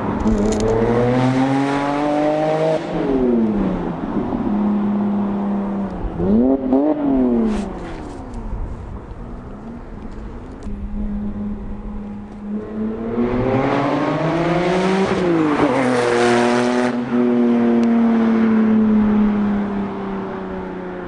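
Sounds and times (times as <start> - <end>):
car engine accelerating hard: 10.6 - 20.3.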